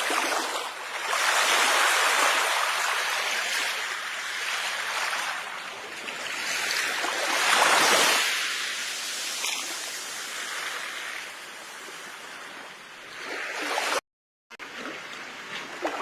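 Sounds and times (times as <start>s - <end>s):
ocean waves washing ashore: 0.0s - 14.0s.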